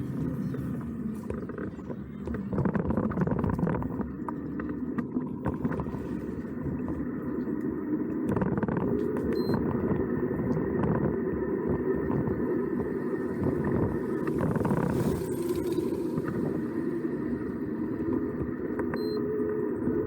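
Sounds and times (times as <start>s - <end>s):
road noise: 0.0s - 2.5s.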